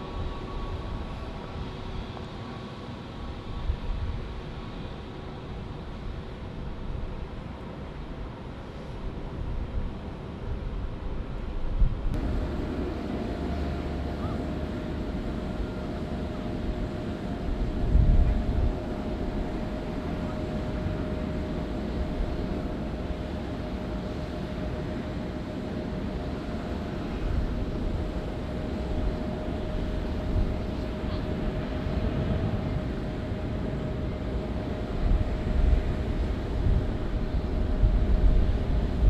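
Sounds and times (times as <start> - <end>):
jet engines whining: 12.2 - 39.0.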